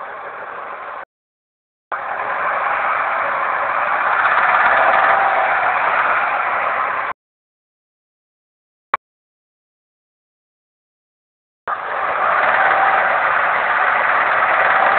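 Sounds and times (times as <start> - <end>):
car engine knocking: 2.0 - 6.7, 11.7 - 14.9.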